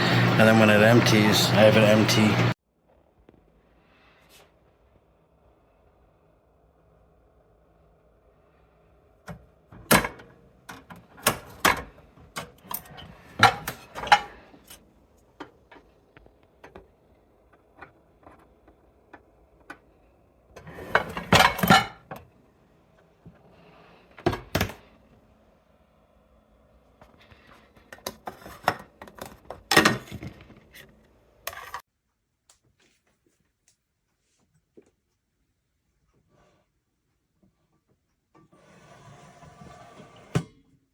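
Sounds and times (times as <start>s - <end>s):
dishes and utensils clinking: 13.4s - 14.4s, 20.8s - 22.0s.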